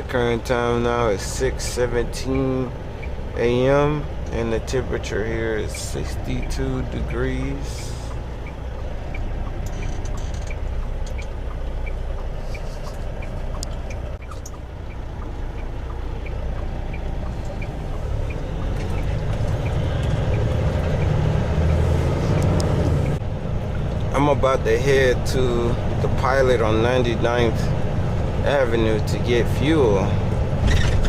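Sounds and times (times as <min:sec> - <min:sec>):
diesel truck engine running: 0:00.0 - 0:31.0
light regular ticking: 0:00.1 - 0:24.2.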